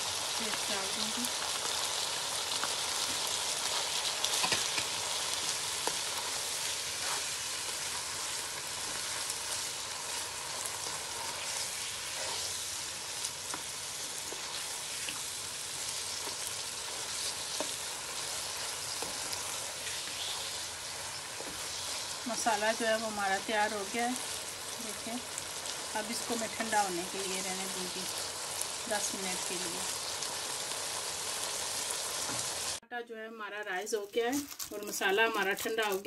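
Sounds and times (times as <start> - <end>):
food sizzling in a pan: 0.0 - 32.8
spatula tapping and scraping pan: 4.3 - 5.0.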